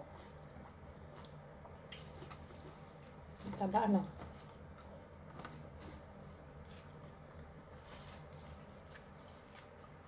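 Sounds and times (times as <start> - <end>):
person chewing: 0.0 - 3.4, 4.5 - 10.0.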